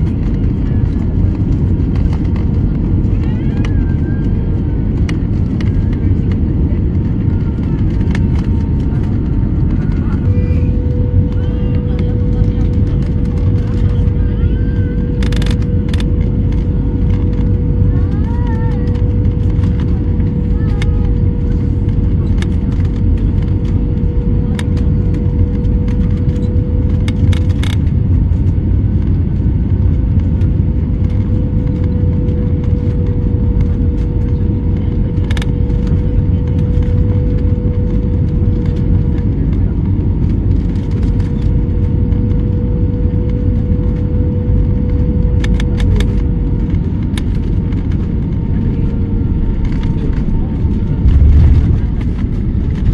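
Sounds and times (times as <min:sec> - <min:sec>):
jet airliner cabin rumble: 0:00.0 - 0:52.9
sharp clicks and rattles: 0:05.0 - 0:34.4, 0:45.0 - 0:48.4, 0:49.0 - 0:52.9.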